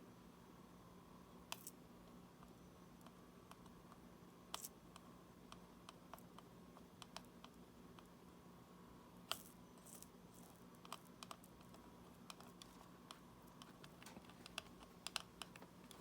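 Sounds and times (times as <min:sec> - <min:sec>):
small tool clicks and ticks: 0:01.5 - 0:01.8, 0:02.4 - 0:08.1, 0:09.3 - 0:16.0.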